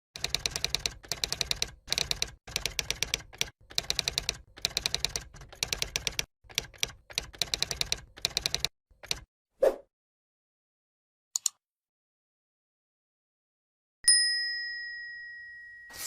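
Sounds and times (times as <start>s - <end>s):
typewriter key clicks: 0.2s - 9.3s.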